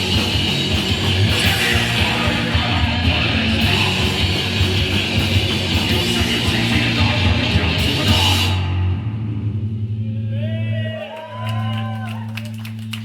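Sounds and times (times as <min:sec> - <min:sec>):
distorted electric guitar: 0:00.0 - 0:10.3
bass: 0:00.0 - 0:13.0
drums: 0:00.0 - 0:13.0.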